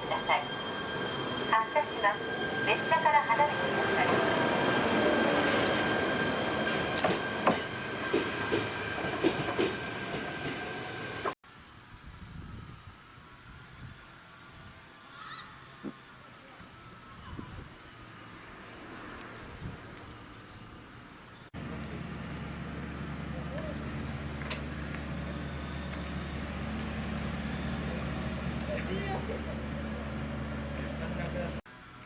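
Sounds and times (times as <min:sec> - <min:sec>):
electric train moving off: 0:00.0 - 0:11.4, 0:21.6 - 0:32.0
train knocks and clanks: 0:00.0 - 0:11.4.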